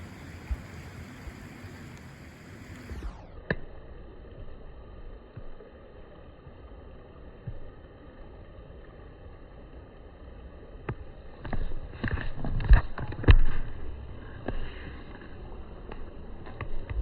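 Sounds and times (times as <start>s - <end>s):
low outdoor background noise: 0.0s - 17.0s.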